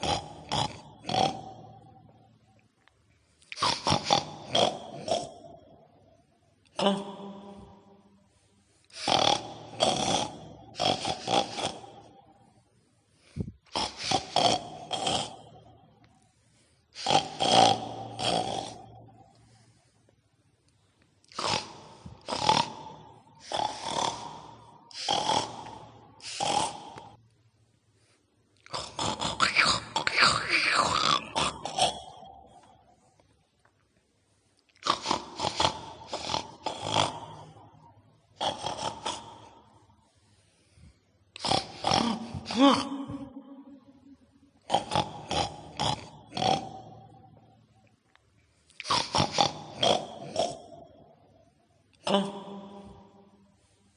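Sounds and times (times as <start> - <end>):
pig grunting and snorting: 0.0 - 1.9, 3.5 - 5.6, 8.9 - 12.2, 13.3 - 15.6, 17.0 - 19.1, 21.3 - 27.2, 28.6 - 32.7, 34.8 - 39.7, 41.4 - 43.5, 44.6 - 47.2, 48.8 - 50.8
pitched growl: 0.0 - 2.2, 28.6 - 32.8, 41.4 - 47.6.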